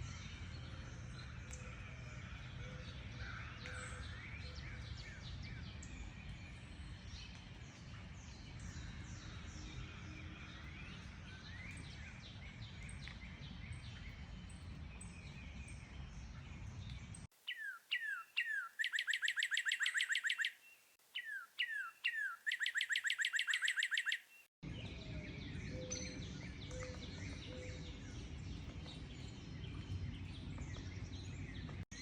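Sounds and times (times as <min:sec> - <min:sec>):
songbirds chirping and singing: 0:08.3 - 0:32.0
bird whistling falling notes: 0:17.5 - 0:20.6, 0:21.2 - 0:24.4
bird trilling: 0:17.5 - 0:24.5.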